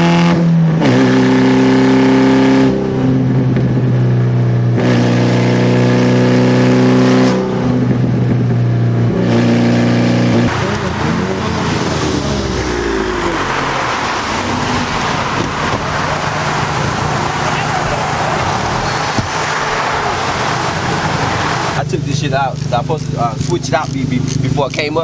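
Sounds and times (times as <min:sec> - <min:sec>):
car engine running: 0:00.0 - 0:25.0
road and traffic noise: 0:00.0 - 0:25.0
vehicle passing sweep: 0:05.0 - 0:22.1.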